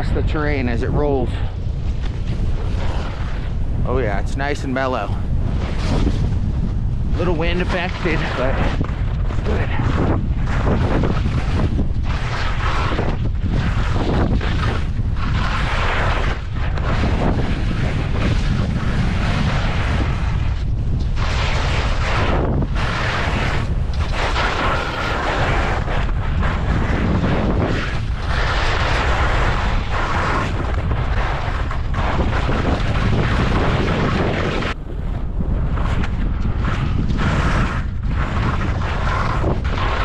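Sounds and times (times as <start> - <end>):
wind buffeting microphone: 0.0 - 40.0
skis sliding through snow: 9.4 - 20.6, 21.2 - 34.8, 35.7 - 40.0.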